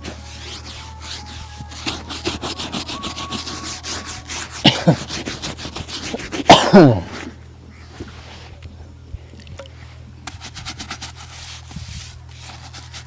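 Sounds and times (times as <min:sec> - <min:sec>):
shoe being buffed: 0:00.0 - 0:06.5, 0:10.3 - 0:13.0.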